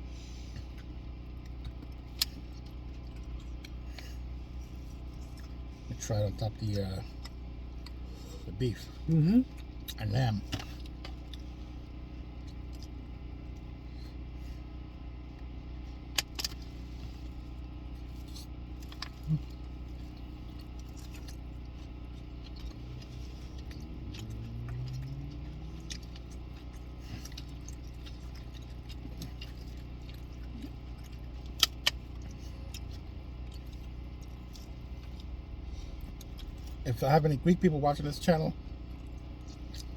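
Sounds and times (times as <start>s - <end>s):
car interior hum: 0.0s - 39.9s.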